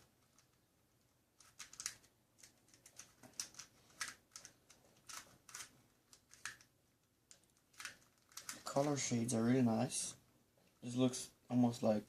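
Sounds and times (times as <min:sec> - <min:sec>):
puzzle cube layers clicking: 0:01.4 - 0:09.0.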